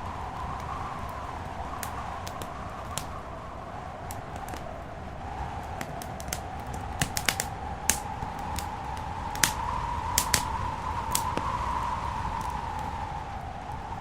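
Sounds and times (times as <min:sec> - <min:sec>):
steady rushing noise: 0:00.0 - 0:14.0
wood fire crackling: 0:00.0 - 0:14.0
sharp pops of fire: 0:00.2 - 0:03.3, 0:04.0 - 0:12.9.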